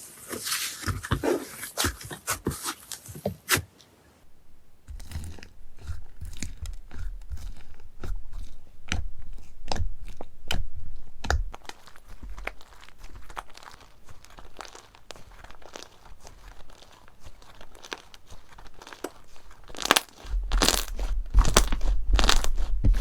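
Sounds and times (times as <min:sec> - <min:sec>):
dull squishing thuds: 0:04.8 - 0:23.0
crunchy slime crackling pops: 0:11.2 - 0:23.0.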